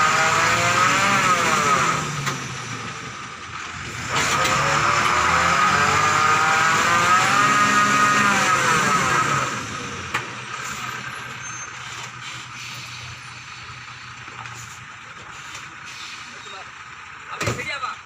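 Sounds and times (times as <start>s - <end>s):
lorry engine revving: 0.0s - 12.1s.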